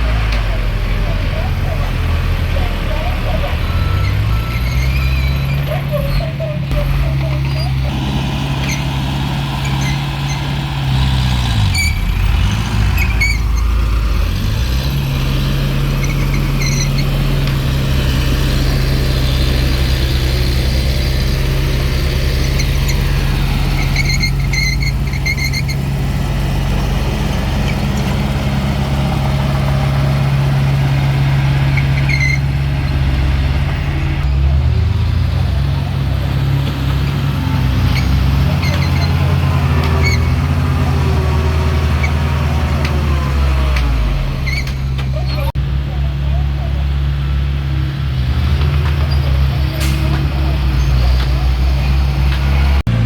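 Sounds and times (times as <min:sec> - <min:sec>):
diesel engine running: 0:00.0 - 0:53.0
short high squeaks: 0:03.6 - 0:10.6, 0:11.7 - 0:12.2, 0:13.0 - 0:13.7, 0:16.0 - 0:17.1, 0:23.8 - 0:25.8, 0:31.8 - 0:32.5, 0:37.9 - 0:39.3, 0:39.9 - 0:40.5, 0:44.4 - 0:45.6.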